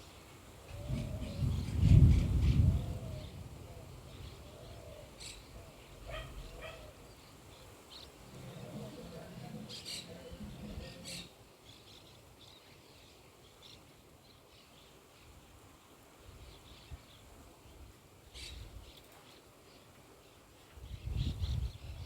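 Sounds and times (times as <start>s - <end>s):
small birds chirping: 0.0s - 13.9s
thunder rumbling: 0.7s - 6.6s.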